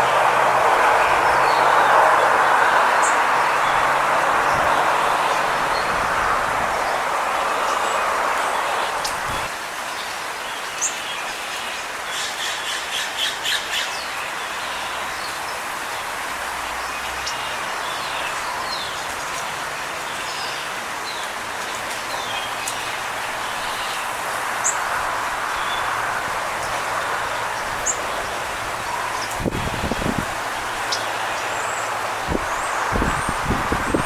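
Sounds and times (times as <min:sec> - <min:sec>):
small birds chirping: 0:26.6 - 0:34.0.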